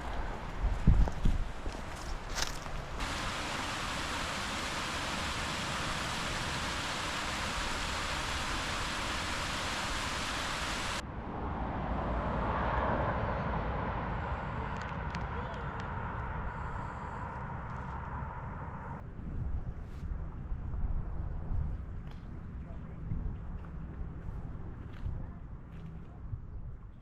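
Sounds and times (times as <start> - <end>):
waterfall rushing: 3.0 - 11.0.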